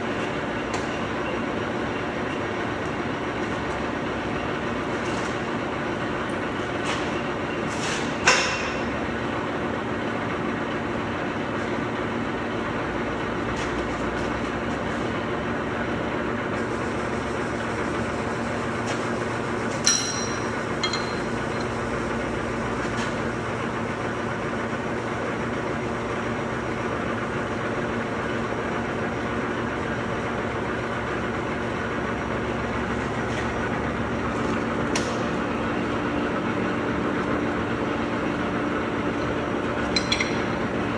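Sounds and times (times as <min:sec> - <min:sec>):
machinery hum: 0:00.0 - 0:40.9
metallic clanks: 0:19.7 - 0:21.9, 0:39.8 - 0:40.9.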